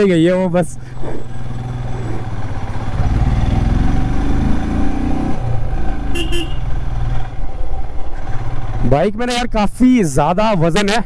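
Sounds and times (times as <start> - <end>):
motorcycle engine accelerating: 0.6 - 9.0.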